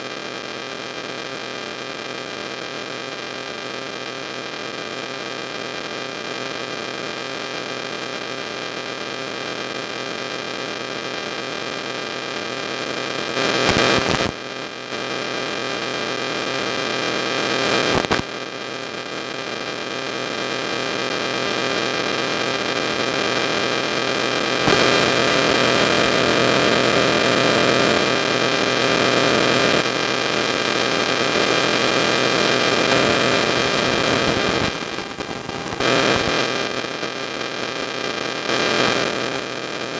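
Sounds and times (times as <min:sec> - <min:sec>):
static hiss: 0:13.5 - 0:14.4, 0:17.8 - 0:18.3, 0:30.5 - 0:36.9.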